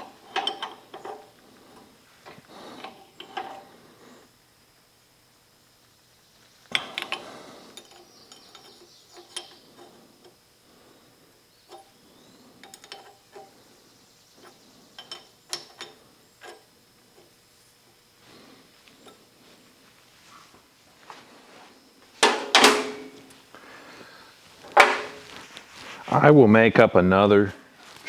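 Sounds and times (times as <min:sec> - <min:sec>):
light metal clicks and clinks: 0:00.3 - 0:01.9, 0:06.8 - 0:10.4, 0:12.6 - 0:13.5, 0:14.4 - 0:16.6
metal clank ringing: 0:22.2 - 0:23.3, 0:24.8 - 0:25.2.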